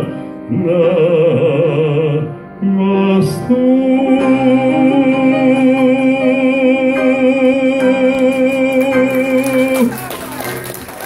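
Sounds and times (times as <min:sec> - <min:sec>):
man singing with vibrato: 0:00.0 - 0:10.1
piano chords: 0:00.0 - 0:11.0.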